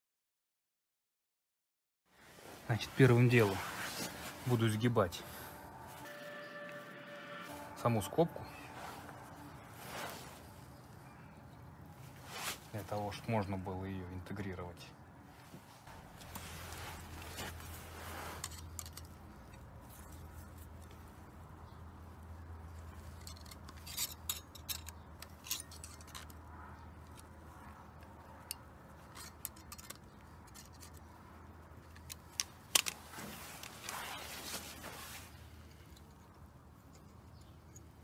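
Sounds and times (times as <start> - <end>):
metallic clicks and clinks: 23.0 - 26.4, 28.4 - 31.0.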